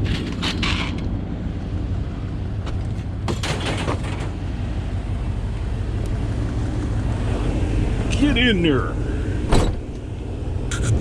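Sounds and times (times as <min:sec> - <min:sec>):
truck engine humming: 0:00.0 - 0:11.0
clanks and knocks: 0:02.7 - 0:04.4.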